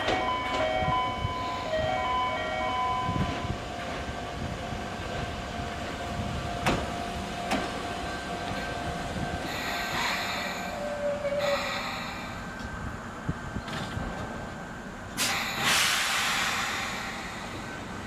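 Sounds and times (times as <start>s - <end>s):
electric train hum and rumble: 0.0s - 18.0s
train brake hiss: 9.5s - 12.5s, 15.2s - 17.8s.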